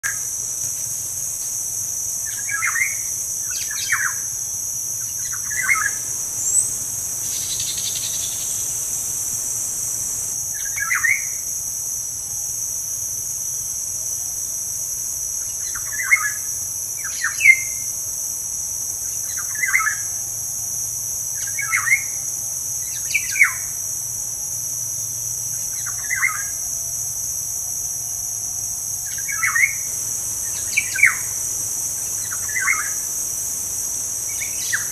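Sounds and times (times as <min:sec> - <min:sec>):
insects droning: 0:00.0 - 0:34.9
bird chirping: 0:05.0 - 0:11.3.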